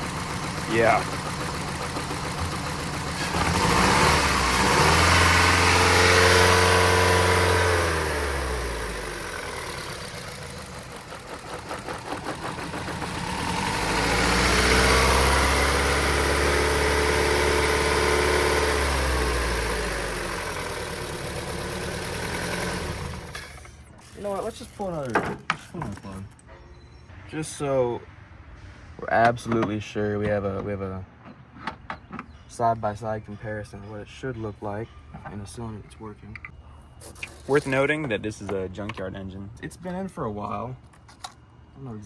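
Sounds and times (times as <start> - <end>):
car engine revving unevenly: 0.0 - 23.6.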